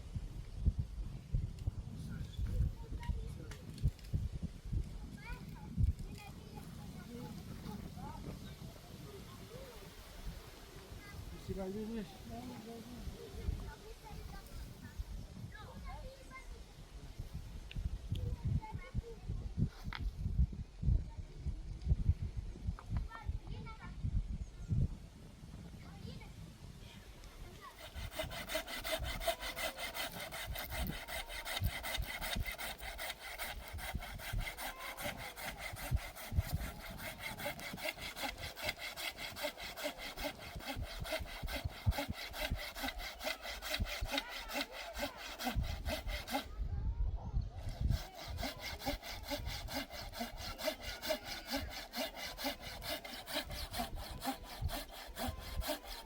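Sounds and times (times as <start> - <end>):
hand saw cutting wood: 27.7 - 46.5, 47.6 - 56.0.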